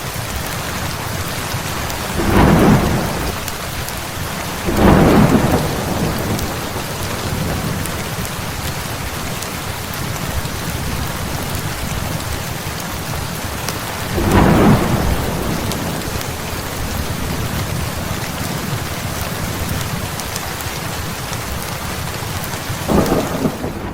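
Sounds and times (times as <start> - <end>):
heavy rain: 0.0 - 23.9
thunder rolling: 1.9 - 8.3, 13.9 - 19.8, 22.9 - 23.9.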